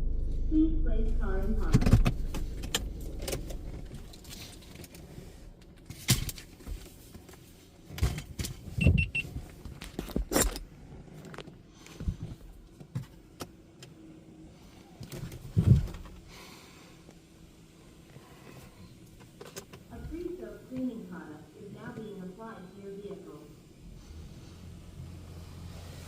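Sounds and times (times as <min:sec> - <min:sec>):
knocks and clicks in car: 0:01.6 - 0:04.2
electronic beep: 0:08.8 - 0:09.2.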